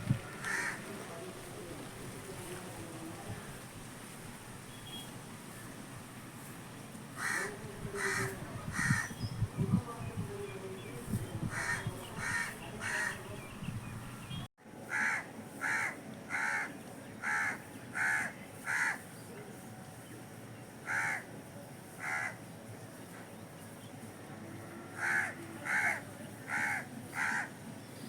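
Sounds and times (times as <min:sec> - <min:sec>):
crow cawing: 0:00.4 - 0:00.8, 0:07.2 - 0:09.1, 0:11.5 - 0:13.2, 0:14.8 - 0:19.0, 0:20.8 - 0:21.3, 0:22.0 - 0:22.4, 0:25.0 - 0:27.6.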